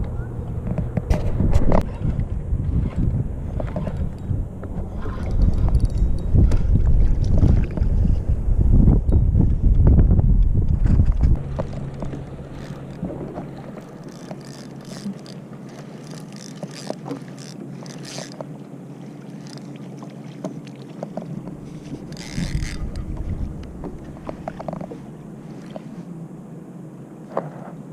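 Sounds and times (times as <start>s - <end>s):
water around a kayak: 0.0s - 27.9s
water rush: 11.4s - 26.2s.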